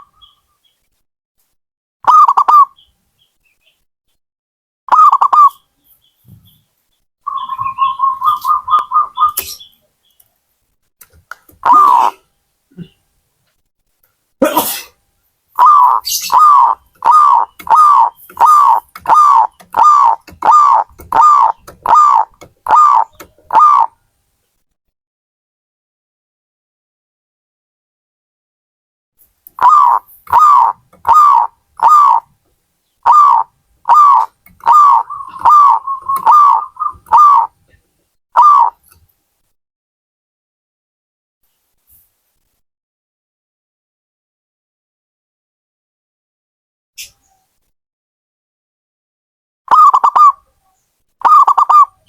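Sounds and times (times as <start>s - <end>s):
dove cooing: 2.1s - 2.7s, 7.3s - 9.4s, 11.6s - 12.2s, 15.6s - 23.9s, 29.6s - 32.3s, 33.0s - 37.6s, 38.4s - 38.8s, 49.7s - 50.4s, 51.2s - 52.0s.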